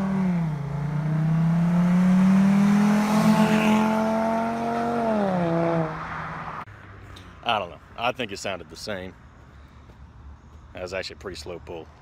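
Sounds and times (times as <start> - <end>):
car accelerating: 0.0 - 6.7.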